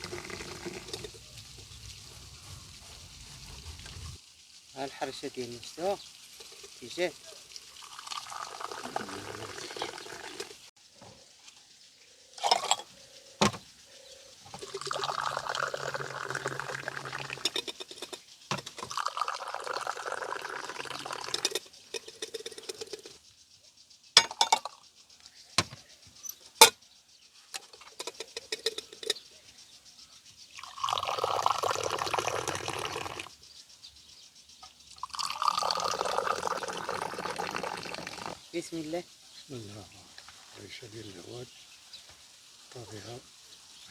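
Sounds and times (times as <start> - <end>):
liquid pouring: 0.0 - 4.2, 4.8 - 10.7, 14.5 - 23.2, 30.6 - 33.3, 35.0 - 38.4.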